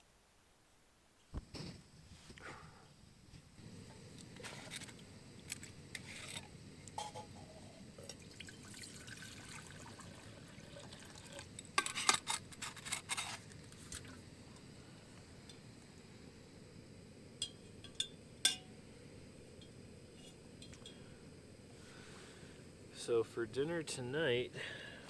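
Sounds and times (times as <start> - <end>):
liquid pouring: 8.0 - 11.6
cookware being handled: 11.7 - 13.4.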